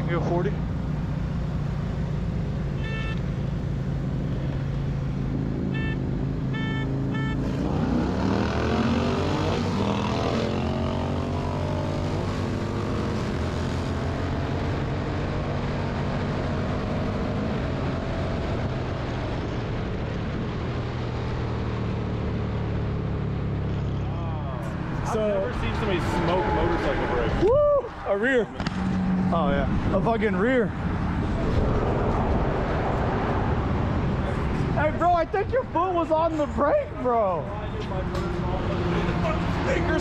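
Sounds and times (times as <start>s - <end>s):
short beeps: 2.8s - 3.2s, 5.8s - 7.5s
motorcycle engines accelerating: 3.9s - 27.4s, 28.0s - 40.0s.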